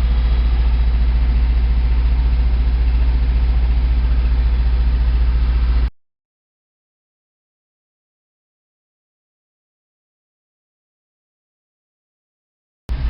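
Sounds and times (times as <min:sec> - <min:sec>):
misfiring engine running: 0:00.0 - 0:05.9.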